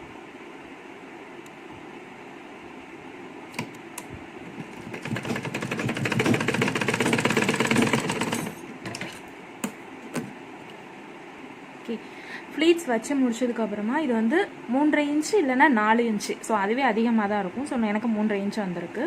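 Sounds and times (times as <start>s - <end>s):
sewing machine stitching: 4.5s - 9.2s.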